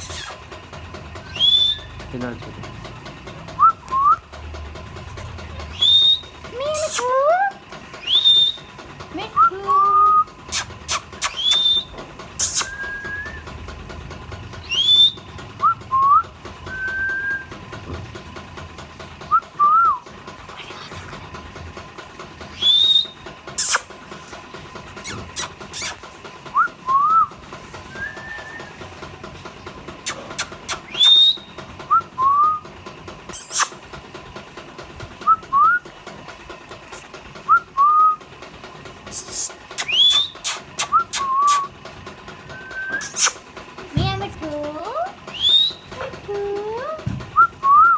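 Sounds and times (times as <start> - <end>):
parrots whistled calls: 1.2 - 2.0, 5.7 - 8.7, 10.1 - 13.5, 14.6 - 17.5, 22.5 - 23.9, 25.0 - 26.0, 27.9 - 28.8, 30.0 - 32.6, 33.4 - 33.8, 39.1 - 41.8, 42.5 - 43.4, 45.3 - 46.0
sharp clicks: 10.1 - 15.8, 29.8 - 31.7, 39.0 - 44.0.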